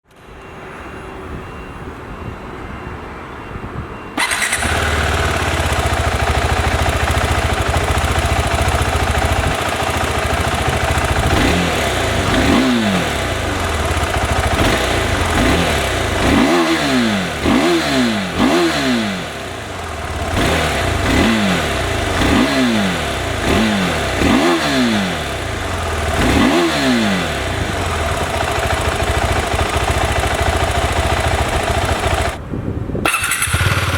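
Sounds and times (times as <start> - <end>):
motorcycle engine idling: 4.2 - 32.4, 33.1 - 33.9
motorcycle throttle blips: 4.2 - 33.9.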